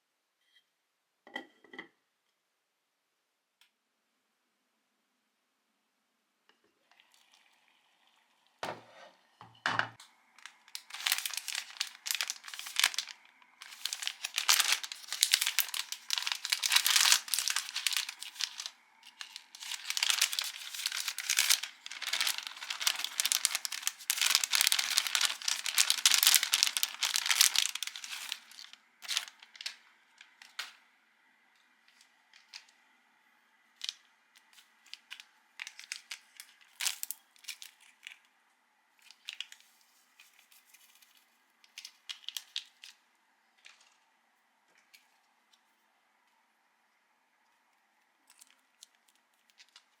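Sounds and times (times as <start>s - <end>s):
packaging crinkling and tearing: 10.4s - 30.8s, 31.9s - 32.8s, 33.8s - 38.3s, 39.0s - 43.0s, 48.2s - 50.0s.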